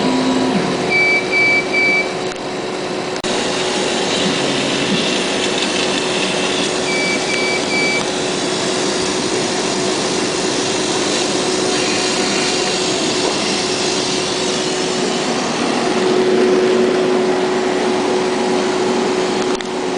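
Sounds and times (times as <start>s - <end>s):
machine fans whirring hum: 0.0s - 19.9s
short high beeps: 6.8s - 8.0s.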